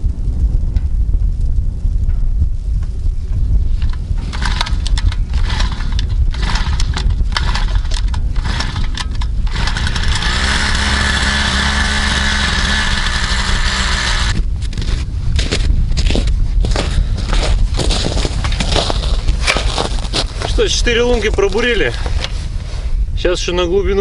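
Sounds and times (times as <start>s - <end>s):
knocking and crunching: 3.8s - 22.3s
ice auger engine running: 4.3s - 14.9s.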